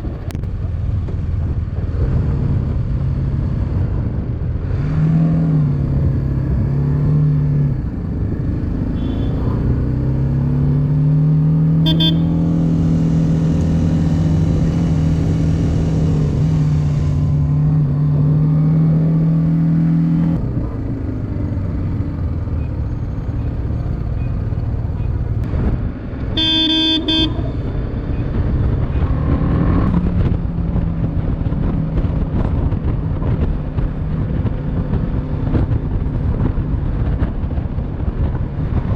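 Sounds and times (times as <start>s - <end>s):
wind and road noise: 0.0s - 38.9s
vehicle horn toot: 8.9s - 9.5s, 11.8s - 12.4s, 26.4s - 27.5s
motorcycle engine running: 11.8s - 18.0s.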